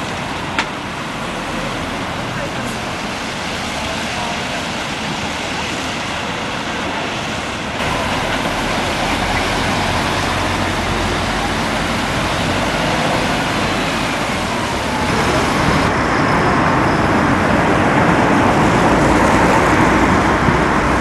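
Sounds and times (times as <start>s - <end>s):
road traffic with engine rumble: 0.0s - 21.0s.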